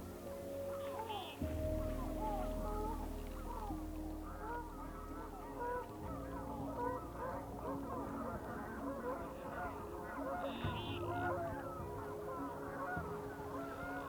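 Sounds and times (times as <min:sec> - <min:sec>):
steady low drone: 0:00.0 - 0:14.0
waterfowl honking: 0:00.0 - 0:14.0.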